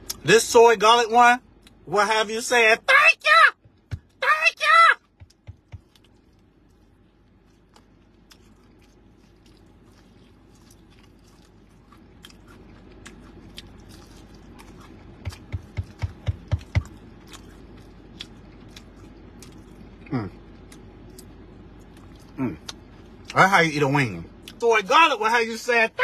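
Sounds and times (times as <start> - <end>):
person chewing crispy chicken: 5.3 - 23.4.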